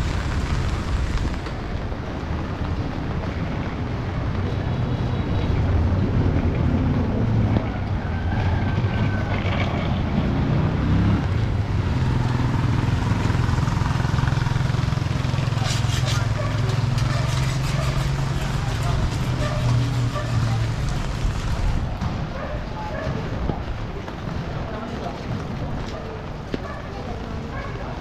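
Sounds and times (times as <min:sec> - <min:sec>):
street noise: 0:00.0 - 0:28.0
vehicle engine running: 0:09.9 - 0:22.0.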